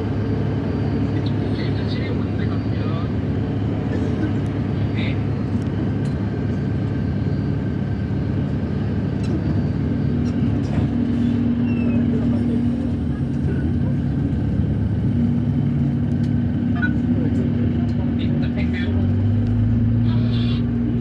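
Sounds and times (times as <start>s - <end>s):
vehicle engine drone: 0.0s - 21.0s.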